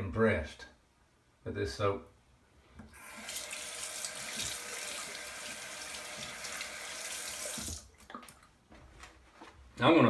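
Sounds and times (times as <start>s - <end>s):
tap running water: 2.8s - 8.5s.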